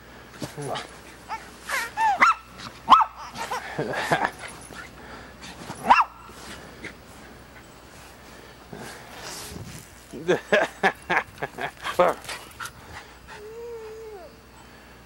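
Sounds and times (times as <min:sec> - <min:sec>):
dog barking in high yips: 0:01.8 - 0:03.4, 0:05.8 - 0:06.2.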